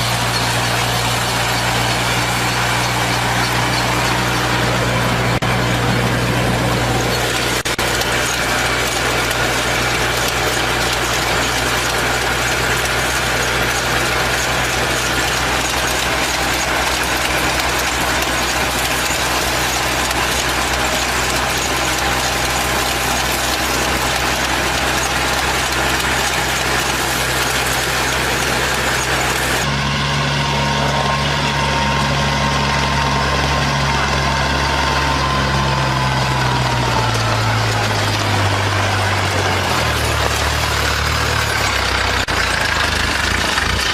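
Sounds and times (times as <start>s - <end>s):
engine hum: 0.0s - 43.9s
harvester engine clattering: 0.0s - 43.9s.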